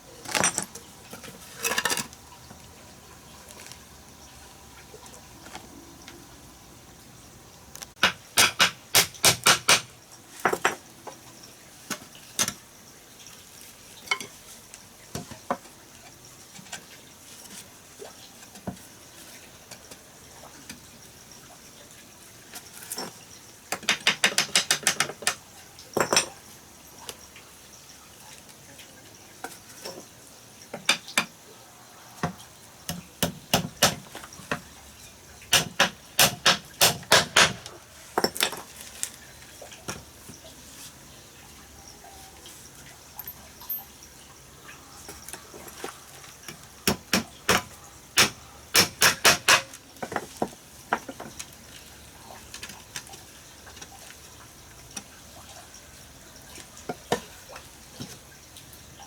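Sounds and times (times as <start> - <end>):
hard objects knocking and clicking: 7.9 - 9.9, 23.7 - 25.4, 30.8 - 31.3, 35.5 - 38.7, 46.5 - 51.4.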